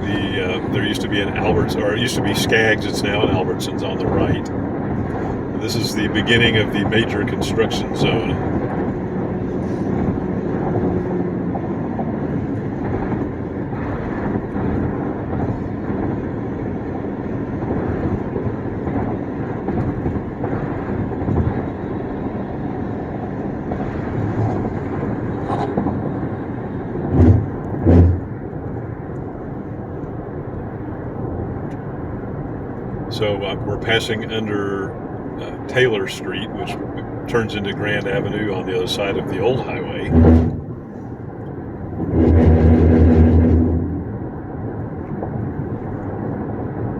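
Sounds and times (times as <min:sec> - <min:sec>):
tyre and engine noise: 0:00.0 - 0:46.9
loud thumps: 0:27.0 - 0:28.4, 0:40.0 - 0:40.9, 0:42.0 - 0:44.2.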